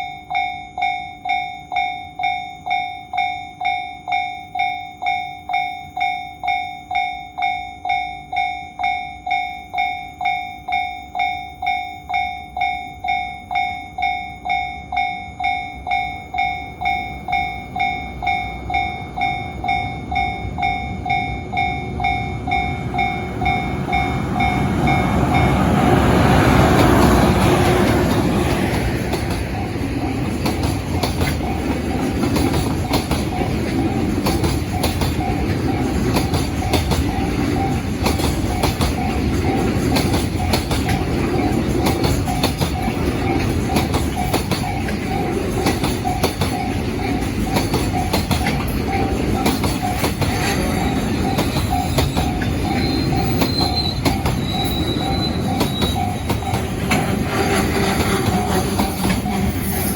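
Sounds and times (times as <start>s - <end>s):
freight train rumbling past: 12.6s - 59.9s
wheels clicking over rail joints: 16.8s - 59.9s
thin continuous wheel squeal: 19.3s - 59.9s
brief high squeals: 51.8s - 56.2s.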